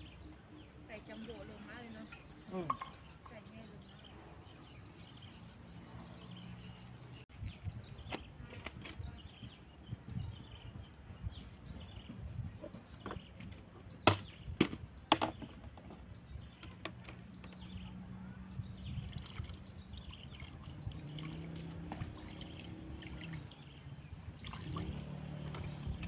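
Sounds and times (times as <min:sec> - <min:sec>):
water trickling and lapping: 0:15.8 - 0:26.0.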